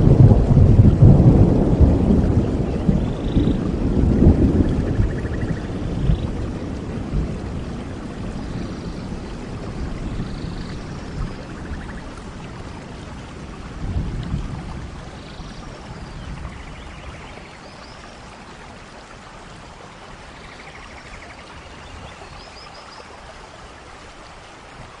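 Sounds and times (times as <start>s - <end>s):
low thunder rumbles: 0.0s - 17.6s
steady rain in a forest: 0.0s - 25.0s.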